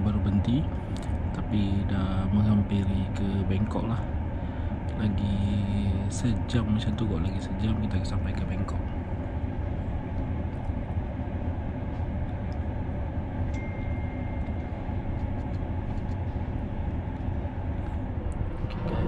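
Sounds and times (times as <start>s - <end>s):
train carriage rumble: 0.0s - 19.0s
high steady tone: 13.4s - 15.3s.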